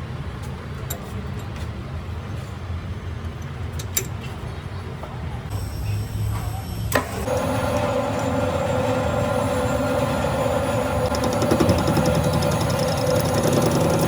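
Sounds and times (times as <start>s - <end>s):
lathe humming with whine: 5.6s - 14.0s.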